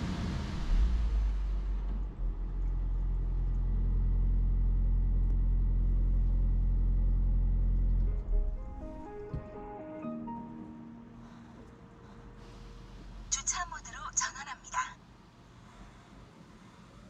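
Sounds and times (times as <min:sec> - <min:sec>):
car wash machinery rumbling: 0:00.0 - 0:09.5, 0:11.2 - 0:13.4
music: 0:07.9 - 0:16.8.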